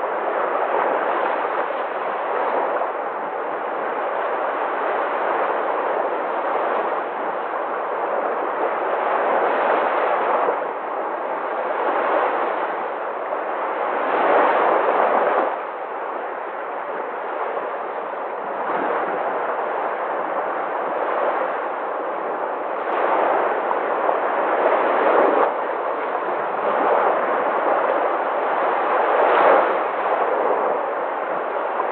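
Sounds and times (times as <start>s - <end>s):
sea surf washing on shore: 0.0s - 31.9s.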